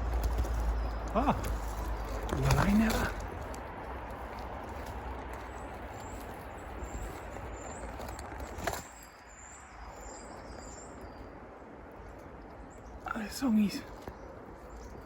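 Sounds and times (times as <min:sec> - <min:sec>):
rustling: 0:00.0 - 0:09.2.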